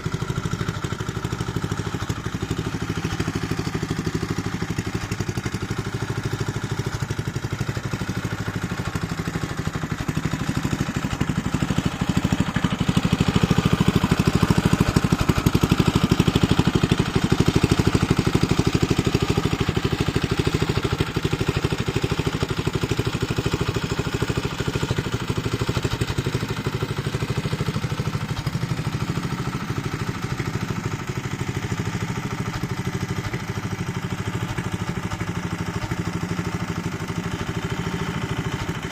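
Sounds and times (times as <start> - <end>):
tiller engine running: 0.0 - 38.9.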